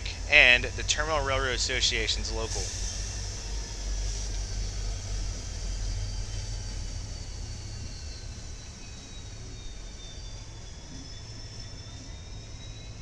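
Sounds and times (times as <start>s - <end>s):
freight trains rumbling: 0.0s - 7.8s
faint high whine: 0.0s - 13.0s.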